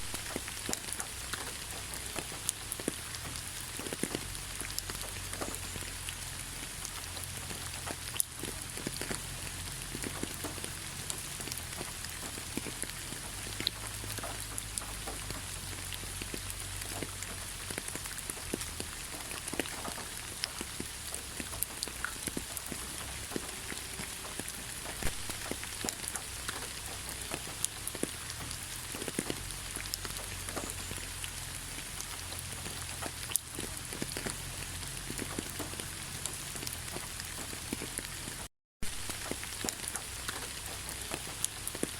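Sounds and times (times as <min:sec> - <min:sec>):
rain hiss: 0:00.0 - 0:41.9
raindrops pattering on leaves: 0:00.0 - 0:41.9.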